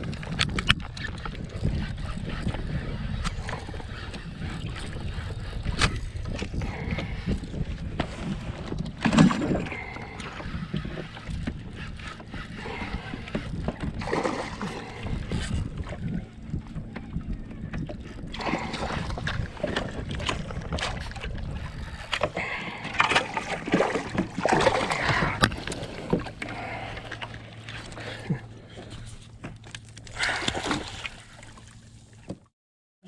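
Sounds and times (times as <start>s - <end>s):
low rumble: 1.1s - 31.7s
water splashes: 12.6s - 16.0s, 18.3s - 21.4s, 22.1s - 28.3s, 30.0s - 32.4s.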